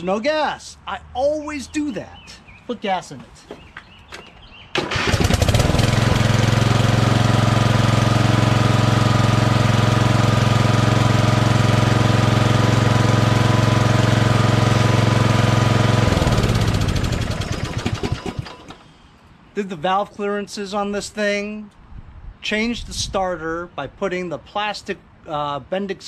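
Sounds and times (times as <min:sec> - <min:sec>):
lawn tractor engine running: 0:04.8 - 0:18.9.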